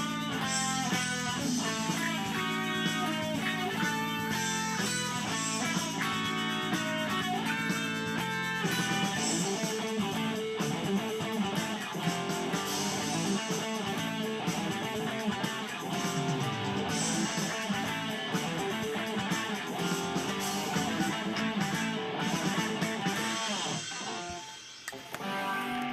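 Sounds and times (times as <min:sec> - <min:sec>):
guitar plucked and strummed: 0:00.0 - 0:25.9.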